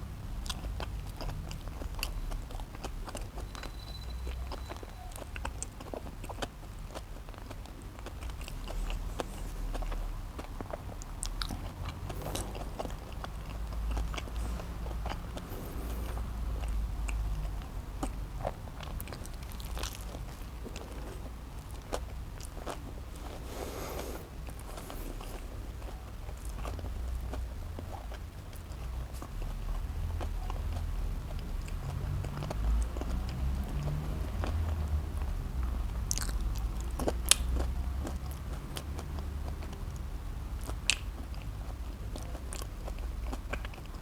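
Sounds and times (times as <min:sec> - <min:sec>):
chewing and biting burger: 0:00.0 - 0:44.0
wet mouth clicks: 0:08.0 - 0:27.4, 0:36.1 - 0:41.8.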